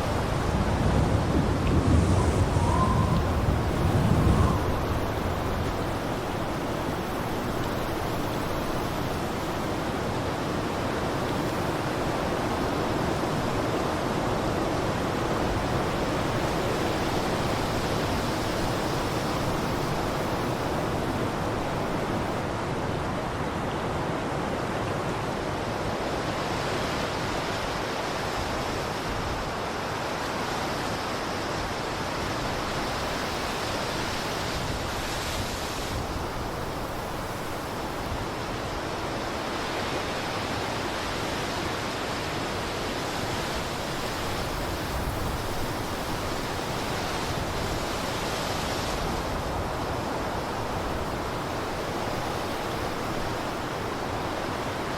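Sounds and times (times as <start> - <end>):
blizzard wind rushing: 0.0 - 24.6.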